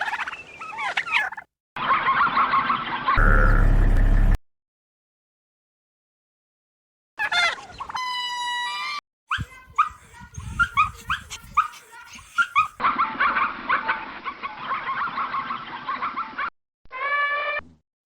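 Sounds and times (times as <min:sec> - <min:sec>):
dog yipping and yelping: 0:09.3 - 0:13.8.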